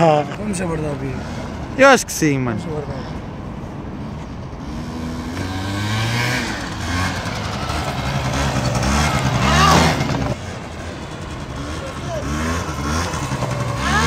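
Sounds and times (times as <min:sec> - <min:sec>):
scooter engine revving hard: 0:04.6 - 0:14.0.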